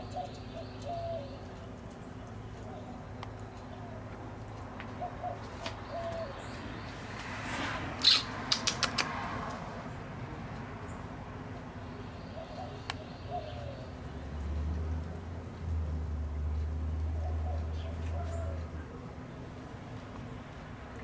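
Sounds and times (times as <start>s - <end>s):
bird cooing: 0.0s - 1.5s, 3.7s - 4.1s, 4.9s - 6.7s, 12.3s - 14.0s, 17.0s - 19.0s
sharp clicks: 8.0s - 9.6s.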